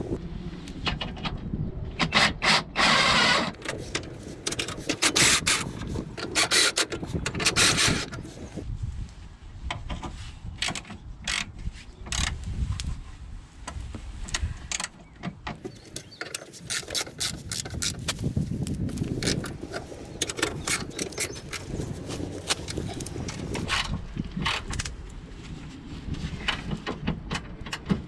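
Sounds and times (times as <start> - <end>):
hand tools clicking and knocking: 3.4 - 8.6, 15.6 - 23.7.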